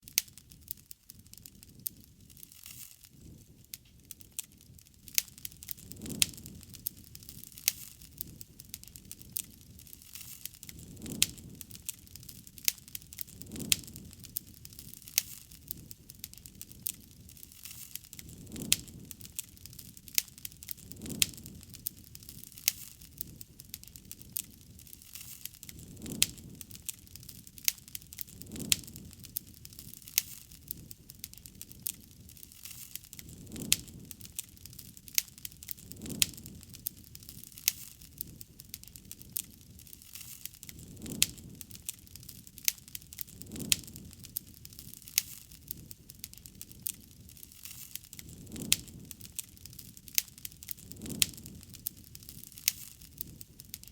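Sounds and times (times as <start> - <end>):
wood campfire crackling: 0.0 - 53.9.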